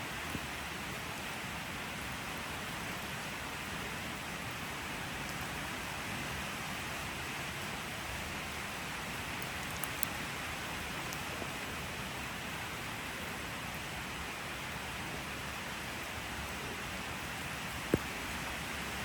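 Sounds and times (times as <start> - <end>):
steady rain hiss: 0.0 - 19.0
sharp raindrop ticks: 9.3 - 10.2, 11.0 - 11.3.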